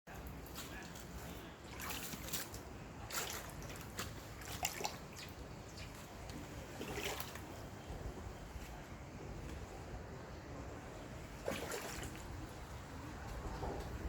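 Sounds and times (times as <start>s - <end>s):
water splashing and trickling: 0.1s - 9.4s, 10.6s - 14.0s
low rush of water: 9.2s - 14.0s.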